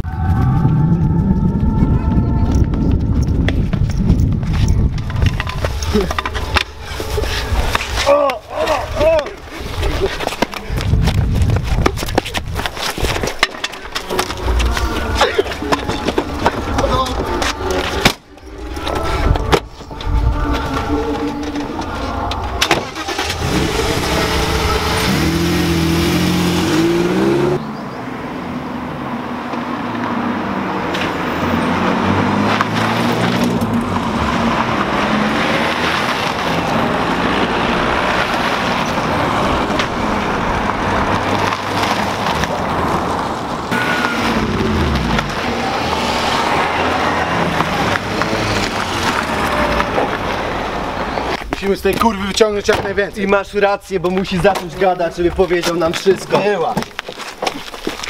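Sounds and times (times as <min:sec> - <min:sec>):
engine and road noise: 0:00.0 - 0:58.0
car engine revving: 0:22.6 - 0:51.3.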